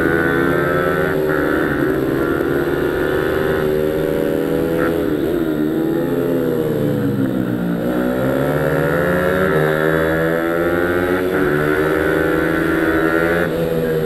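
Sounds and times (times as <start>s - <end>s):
pit bike engine revving: 0.0s - 14.0s.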